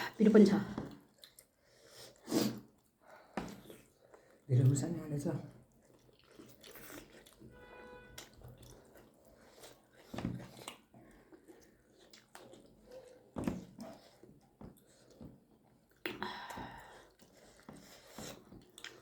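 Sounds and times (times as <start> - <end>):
wet mouth chewing clicks: 10.4 - 16.3.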